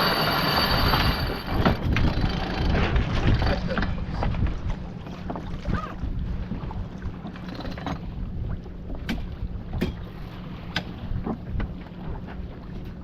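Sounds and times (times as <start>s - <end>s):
wind buffeting microphone: 0.0s - 7.3s
water rushing along hull: 0.0s - 13.0s.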